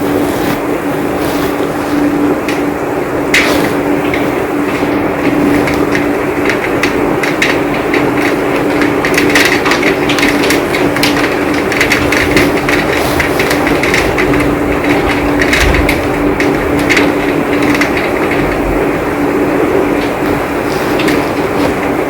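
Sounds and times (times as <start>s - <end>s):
heavy rain: 0.0s - 22.0s
raindrops pattering close by: 0.0s - 22.0s.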